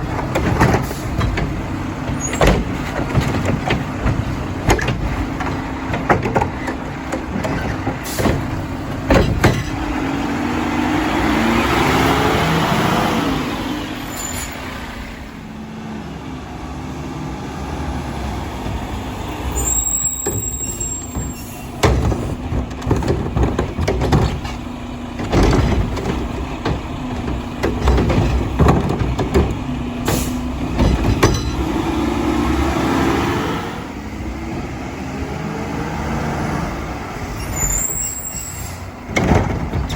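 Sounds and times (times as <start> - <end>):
carts clanking and thumping: 0.0 - 15.5, 18.0 - 35.0, 36.0 - 39.9
hydraulics running: 0.0 - 39.9
truck engine revving: 0.0 - 39.9
air brakes hissing: 19.5 - 21.8, 30.0 - 30.6, 37.4 - 39.0.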